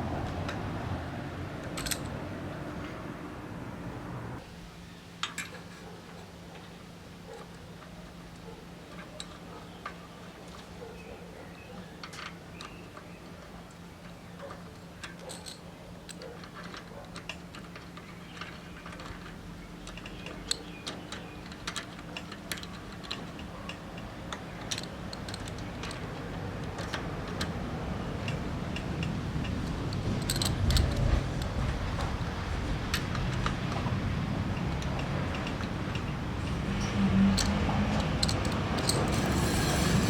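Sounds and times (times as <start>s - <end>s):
metallic clicks of tools: 37.3s - 40.0s.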